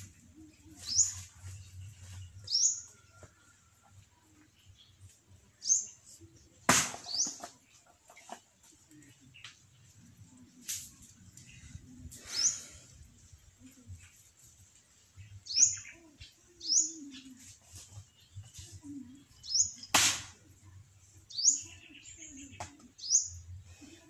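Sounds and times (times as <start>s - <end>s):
bird chirping: 15.1s - 20.0s.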